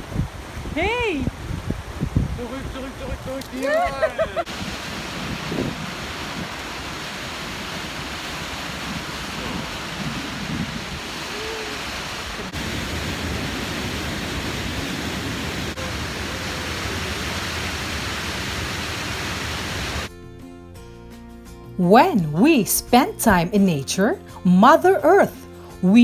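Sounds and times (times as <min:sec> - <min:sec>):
water rushing in stream: 0:00.0 - 0:20.1.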